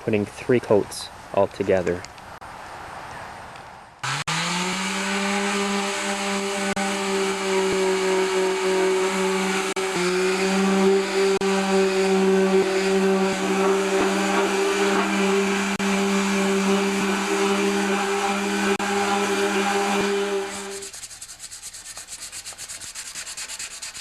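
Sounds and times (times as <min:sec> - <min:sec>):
electric sander on sheet metal: 0:04.0 - 0:21.0.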